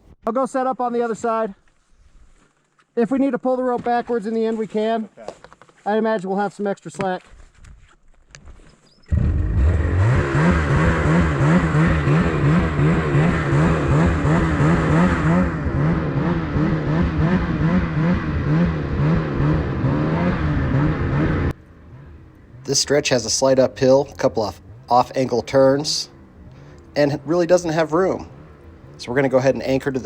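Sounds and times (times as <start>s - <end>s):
snowmobile engine running hard: 9.1s - 21.5s.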